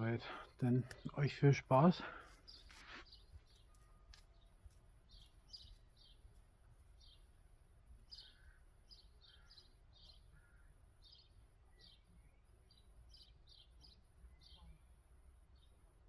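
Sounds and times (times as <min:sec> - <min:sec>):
faint bird chirps: 0:02.4 - 0:06.4, 0:08.0 - 0:15.8.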